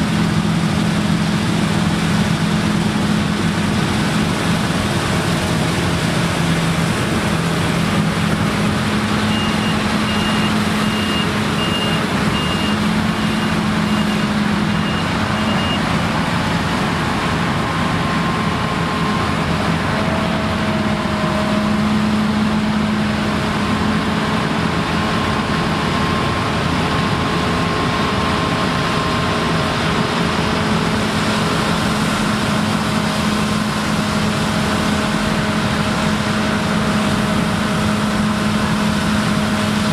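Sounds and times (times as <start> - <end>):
combine harvester running: 0.0 - 39.9
reversing alarm beeping: 9.2 - 15.9.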